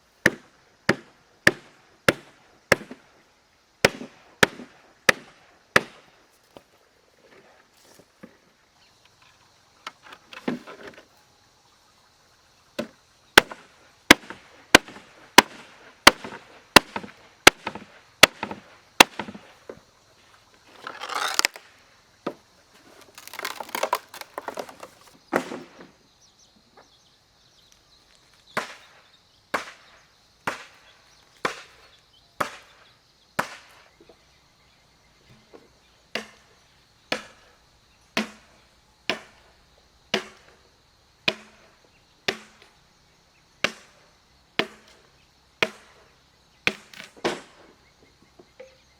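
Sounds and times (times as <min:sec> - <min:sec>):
rustling: 0:20.6 - 0:21.6, 0:22.7 - 0:25.2
blade chopping strokes: 0:20.8 - 0:21.6, 0:22.8 - 0:25.2.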